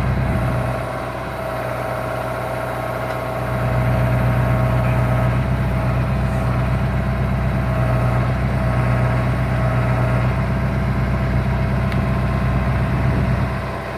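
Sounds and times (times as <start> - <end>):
tractor engine running steadily: 0.0 - 13.9.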